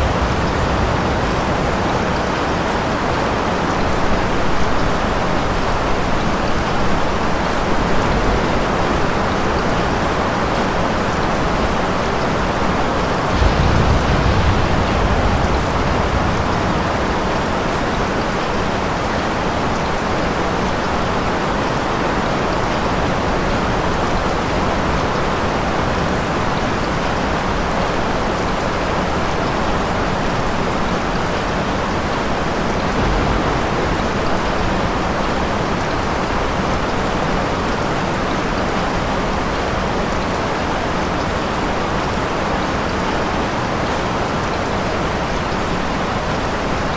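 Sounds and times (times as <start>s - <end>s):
distant thunder rumble: 0.0s - 21.0s, 32.0s - 38.5s
heavy rain falling: 0.0s - 46.9s.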